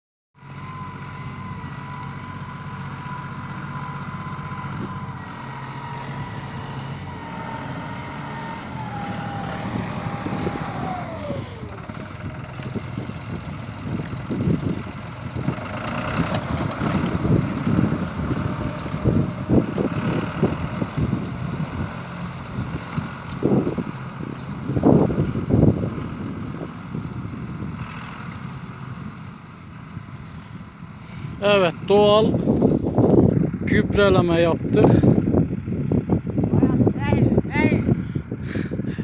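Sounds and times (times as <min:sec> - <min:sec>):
tractor engine running: 0:00.4 - 0:39.0
high mechanical whine: 0:00.5 - 0:12.3
wind gusts on microphone: 0:03.3 - 0:39.0.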